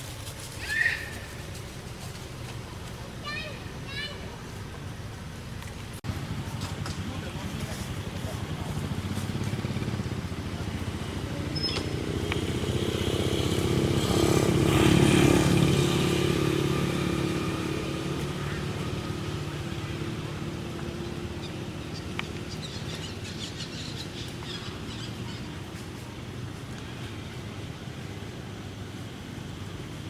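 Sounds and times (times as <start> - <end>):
vehicle engine passing by: 6.0 - 30.0.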